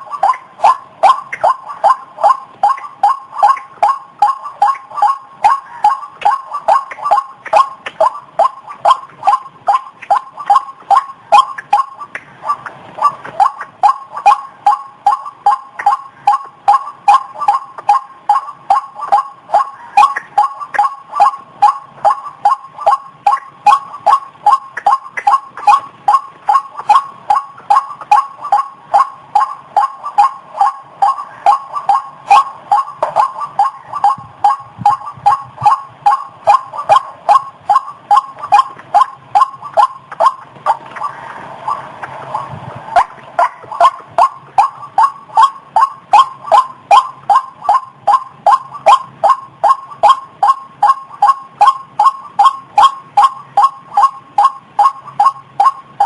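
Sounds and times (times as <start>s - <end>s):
bird calling harsh notes: 0.0s - 56.0s.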